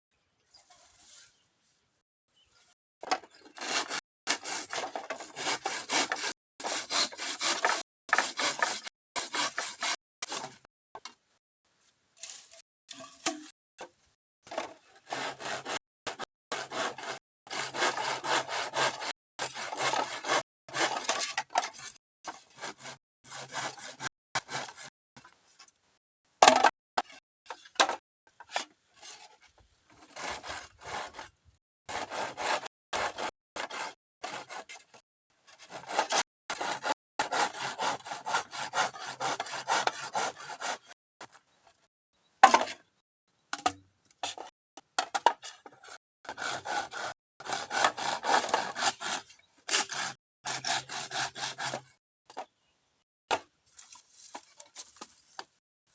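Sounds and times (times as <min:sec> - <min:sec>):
hand saw cutting bamboo: 0:03.0 - 0:10.7, 0:14.5 - 0:24.9, 0:29.9 - 0:31.2, 0:31.9 - 0:41.0, 0:45.5 - 0:52.0.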